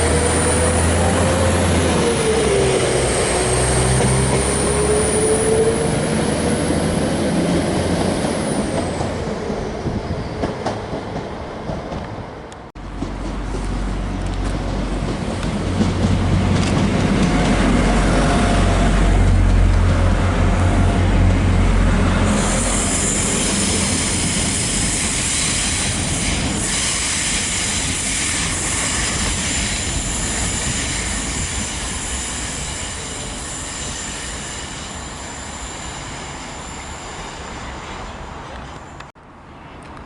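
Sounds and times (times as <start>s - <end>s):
train rumble: 0.0s - 39.2s
high-pitched wheel squeal: 22.3s - 37.7s.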